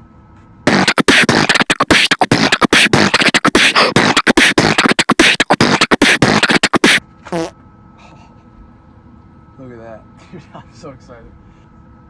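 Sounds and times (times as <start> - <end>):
fast rhythmic clicks: 0.7 - 7.5
voice-like vocal sounds: 0.7 - 7.5.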